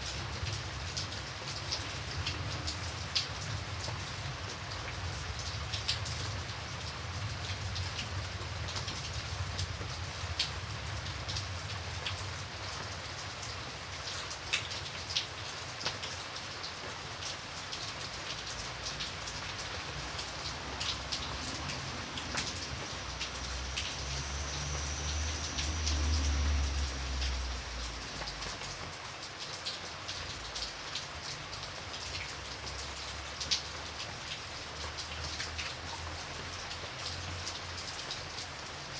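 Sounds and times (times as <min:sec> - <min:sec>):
rain on a hard surface: 0:00.0 - 0:38.9.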